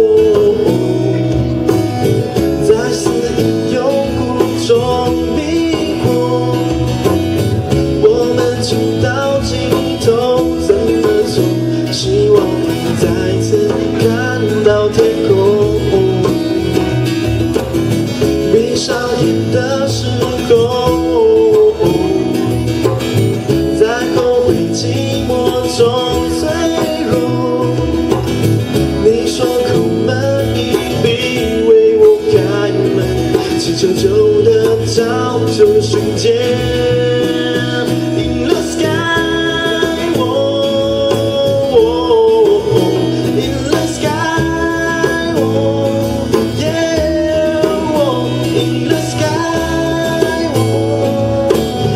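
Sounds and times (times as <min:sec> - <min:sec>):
live band music with guitars: 0:00.0 - 0:51.9.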